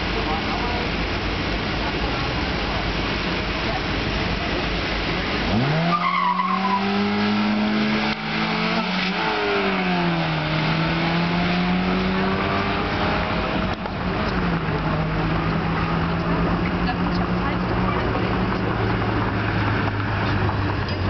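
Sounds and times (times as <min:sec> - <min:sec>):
race car engine revving: 0:00.1 - 0:21.0
tyre squeal: 0:05.8 - 0:07.0.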